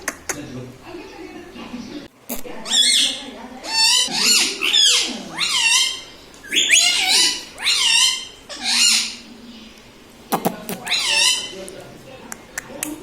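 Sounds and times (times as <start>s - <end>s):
parrot calling: 2.6s - 9.4s, 10.8s - 11.7s.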